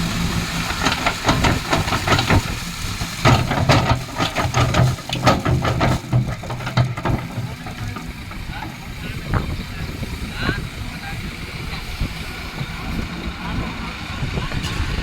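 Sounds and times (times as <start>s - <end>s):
hissing and clattering strokes: 0.0s - 10.2s
diesel engine running: 0.0s - 15.0s.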